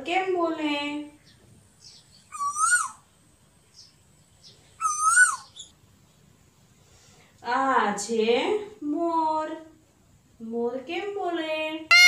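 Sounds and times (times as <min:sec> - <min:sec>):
bird hooting call: 0:02.3 - 0:03.0, 0:04.8 - 0:05.7.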